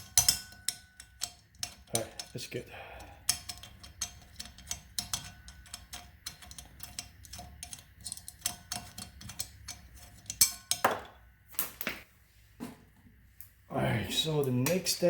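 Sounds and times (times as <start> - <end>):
metal tools clicking and tapping: 0.0 - 11.2.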